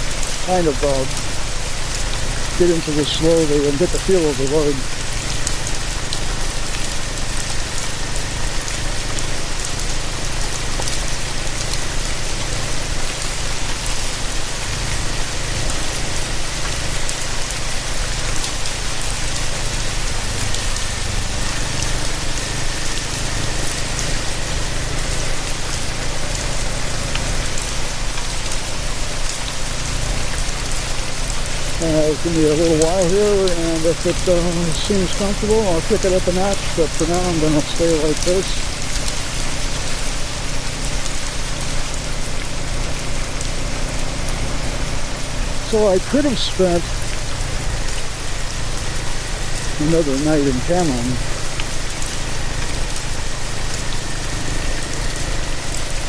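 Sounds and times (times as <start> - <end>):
motorcycle engine humming: 0.0 - 35.6
steady rain: 0.0 - 56.0
wet road noise: 0.0 - 56.0.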